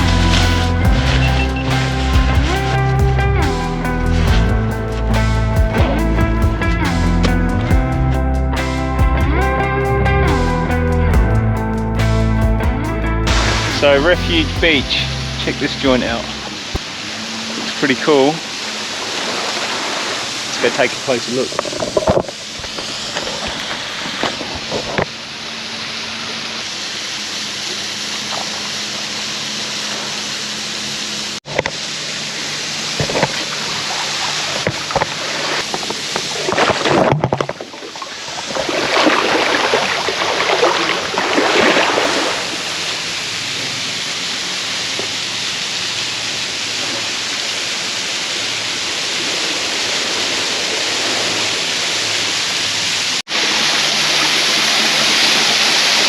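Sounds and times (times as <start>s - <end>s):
outboard motor running: 0.0s - 25.2s
rush of wind and water: 13.3s - 56.0s.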